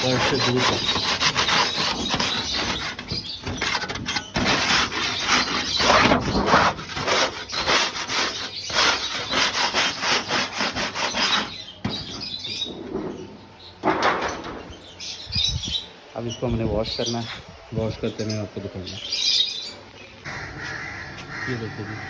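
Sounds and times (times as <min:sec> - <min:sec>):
scraper scraping dirt off tray: 0:00.0 - 0:13.2.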